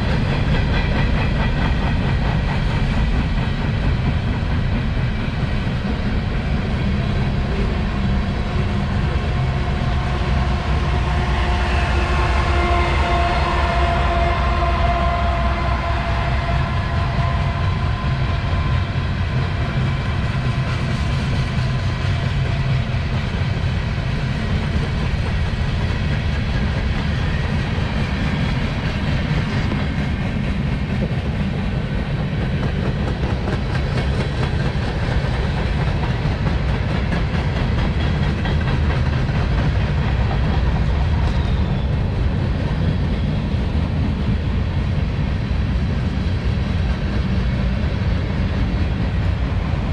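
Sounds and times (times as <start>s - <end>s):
train wheels rumbling on rail: 0.0s - 49.9s.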